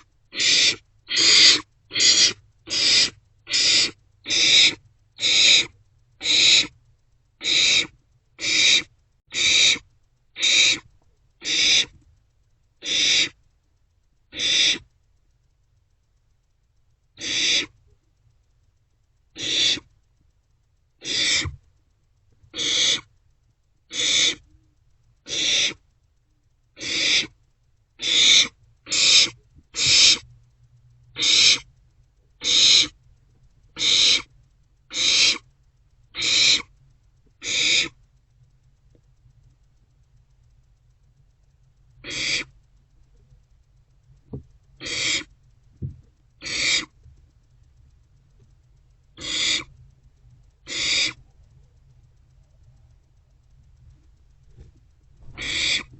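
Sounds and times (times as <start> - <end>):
owlets rasping hiss calls: 0.0 - 6.8, 7.4 - 10.8, 11.4 - 12.0, 12.8 - 13.4, 14.3 - 14.9, 17.2 - 17.8, 19.4 - 19.9, 21.0 - 21.6, 22.5 - 23.2, 23.9 - 24.5, 25.2 - 25.8, 26.8 - 27.4, 28.0 - 30.2, 31.2 - 31.7, 32.4 - 33.0, 33.8 - 34.3, 34.9 - 35.5, 36.2 - 36.7, 37.4 - 38.0, 42.0 - 42.6, 44.8 - 45.3, 46.4 - 47.0, 49.2 - 49.7, 50.6 - 51.2, 55.2 - 55.9.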